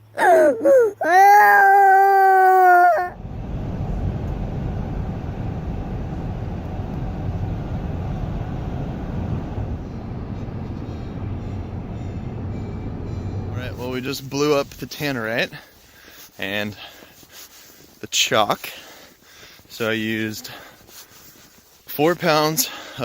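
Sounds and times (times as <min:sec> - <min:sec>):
child wailing cry: 0:00.0 - 0:03.2
steady low rumbling: 0:03.1 - 0:15.2.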